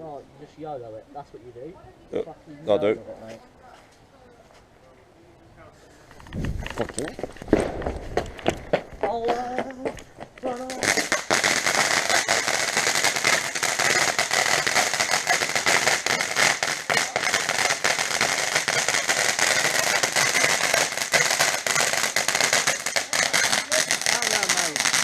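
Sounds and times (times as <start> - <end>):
firework fizzing and crackling: 6.2 - 25.0.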